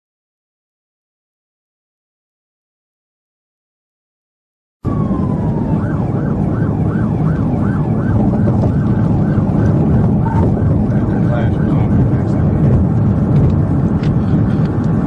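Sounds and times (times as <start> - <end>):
emergency vehicle siren: 4.8 - 15.0
engine and road rumble: 4.9 - 15.0.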